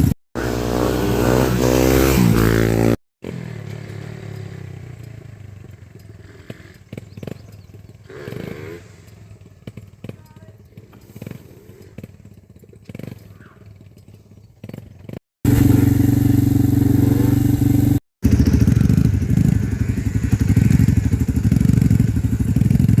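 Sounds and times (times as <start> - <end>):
dirt bike engine running: 0.0 - 23.0.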